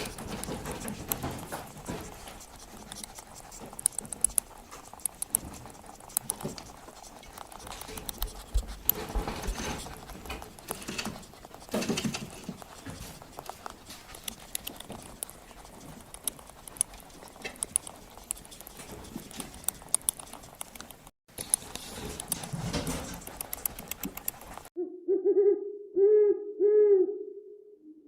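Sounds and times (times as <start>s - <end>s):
rustling: 0.0s - 24.7s
scattered clicks: 0.0s - 24.7s
owl hooting: 24.8s - 28.0s.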